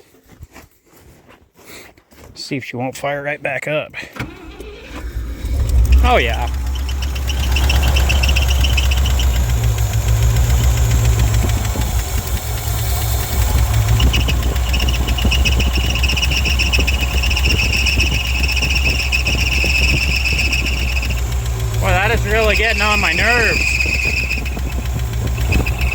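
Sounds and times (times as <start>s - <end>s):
pickup engine droning: 4.2s - 25.9s
thin high whine: 5.1s - 25.9s.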